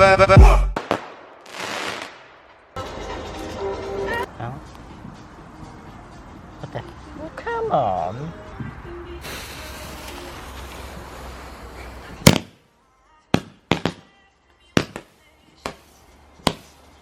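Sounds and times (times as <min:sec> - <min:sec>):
firework bangs: 0:00.7 - 0:02.7, 0:09.2 - 0:12.6, 0:13.3 - 0:14.0, 0:14.8 - 0:16.7
firework hissing: 0:09.2 - 0:12.5.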